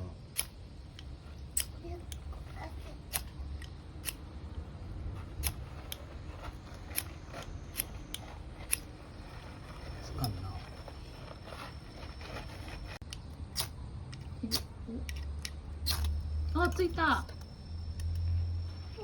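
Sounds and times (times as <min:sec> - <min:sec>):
fire-starter rod scraping: 0:00.4 - 0:13.7.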